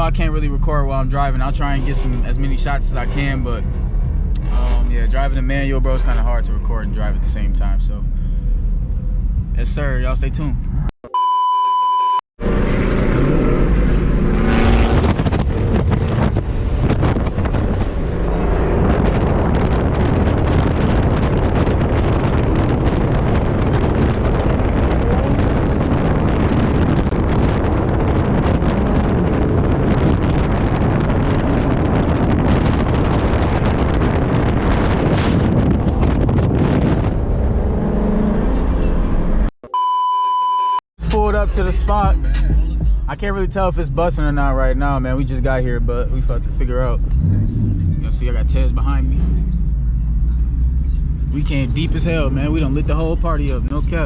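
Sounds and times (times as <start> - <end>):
car engine and road noise: 0.0 - 54.0
wind buffeting on microphone: 13.0 - 38.8.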